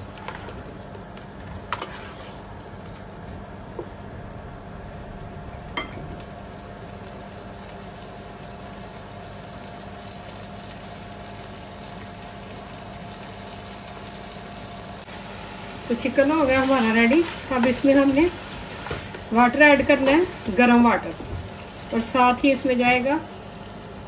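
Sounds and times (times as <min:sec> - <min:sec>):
chicken sizzling in butter: 0:01.6 - 0:02.6, 0:07.4 - 0:24.0.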